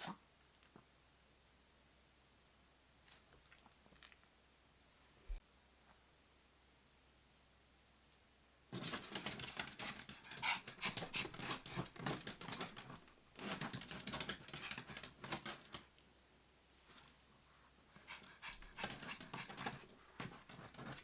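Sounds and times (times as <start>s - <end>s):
dog panting rapidly: 8.8s - 15.7s, 18.0s - 21.0s.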